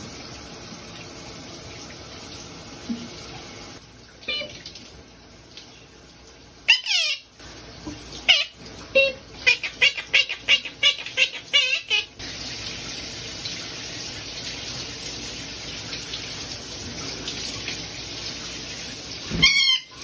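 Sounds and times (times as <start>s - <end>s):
pet bird chirping: 6.7s - 7.2s.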